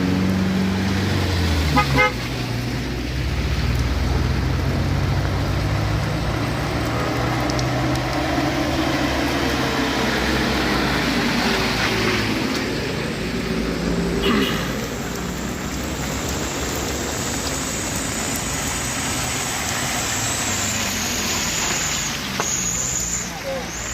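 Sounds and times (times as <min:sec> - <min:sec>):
truck horn toot: 0:01.7 - 0:02.3.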